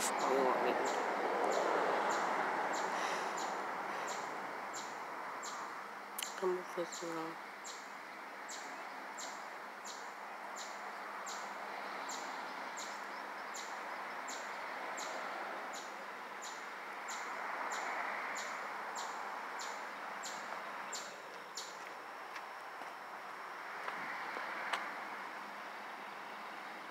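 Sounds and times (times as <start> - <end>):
bird chirping: 0.0 - 22.1.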